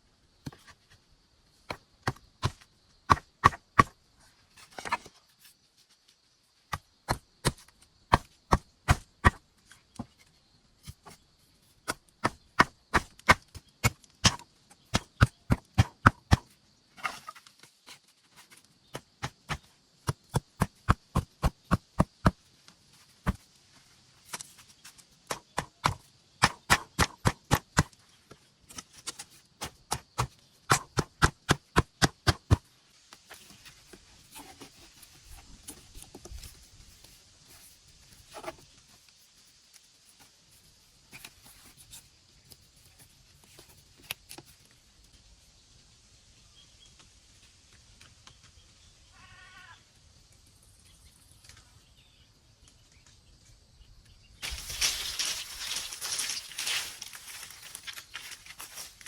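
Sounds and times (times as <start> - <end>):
wood being chopped: 1.7 - 4.0, 6.7 - 9.4, 11.8 - 17.3, 18.9 - 22.4, 25.3 - 27.9, 29.1 - 32.6.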